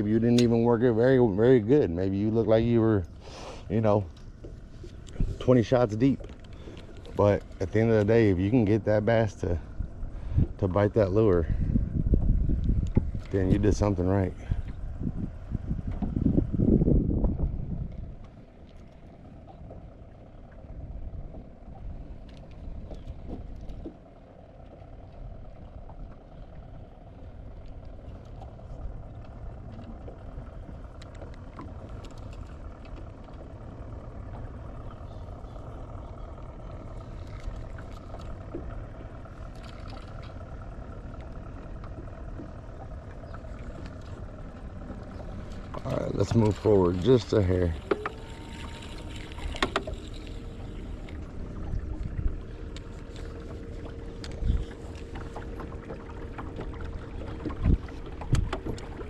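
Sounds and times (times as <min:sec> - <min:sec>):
water noise: 0:00.0 - 0:59.0
wind: 0:00.0 - 0:59.0
light clicks: 0:22.2 - 0:24.0, 0:27.6 - 0:33.6, 0:34.2 - 0:51.2.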